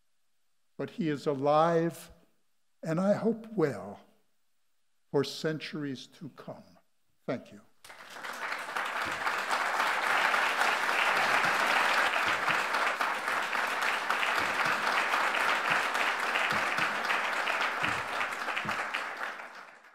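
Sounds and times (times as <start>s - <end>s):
audience applauding: 7.8s - 19.9s.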